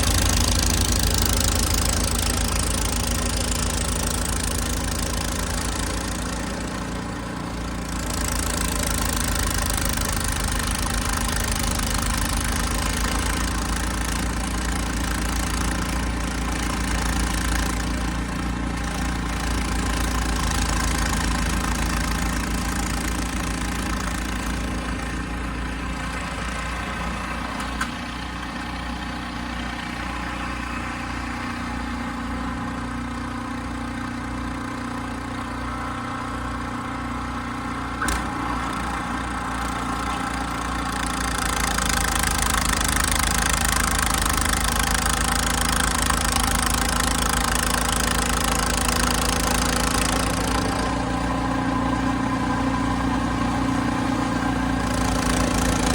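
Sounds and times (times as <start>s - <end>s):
snow blower engine running: 0.0s - 55.9s.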